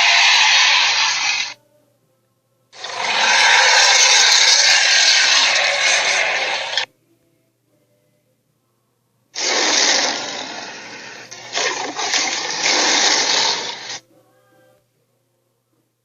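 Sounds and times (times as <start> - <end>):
cartoon dinosaur screeching: 0.0 - 1.6, 2.8 - 6.9, 9.4 - 14.0.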